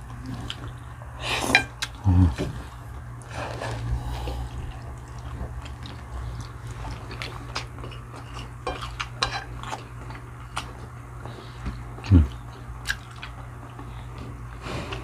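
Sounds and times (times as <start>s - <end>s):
steady low hum: 0.0s - 15.0s
cutlery clinking on plates: 7.9s - 9.5s.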